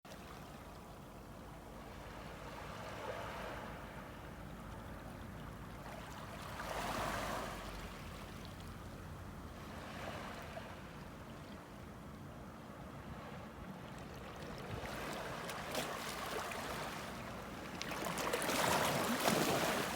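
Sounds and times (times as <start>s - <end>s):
ocean waves washing on shore: 1.2s - 11.2s, 14.4s - 19.9s.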